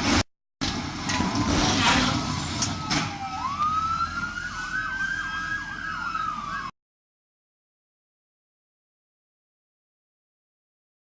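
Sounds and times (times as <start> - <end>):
emergency vehicle siren yelping: 0.6 - 6.8.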